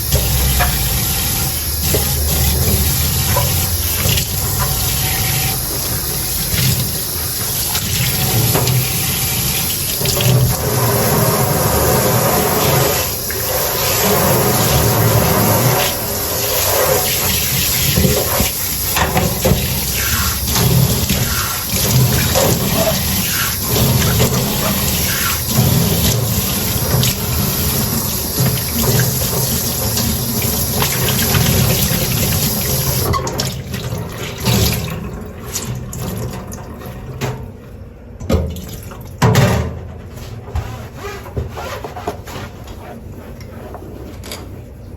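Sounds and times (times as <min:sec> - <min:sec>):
tap running into sink: 0:00.0 - 0:35.0.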